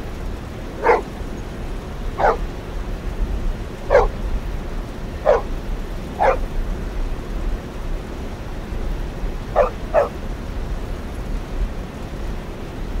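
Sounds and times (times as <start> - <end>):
steady background noise: 0.0 - 13.0
dog barking: 0.8 - 1.1, 2.2 - 2.4, 3.9 - 4.2, 5.2 - 5.5, 6.2 - 6.4, 9.6 - 10.2.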